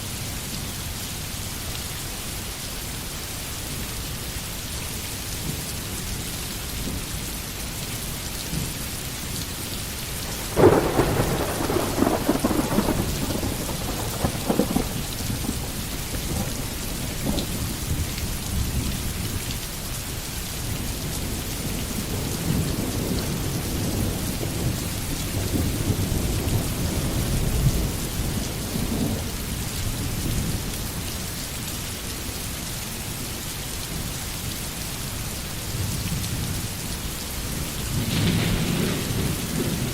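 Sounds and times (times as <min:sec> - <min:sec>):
steady rain: 0:00.0 - 0:39.9
thunder crackling and rumbling: 0:10.2 - 0:19.3, 0:21.0 - 0:30.6, 0:37.8 - 0:39.9.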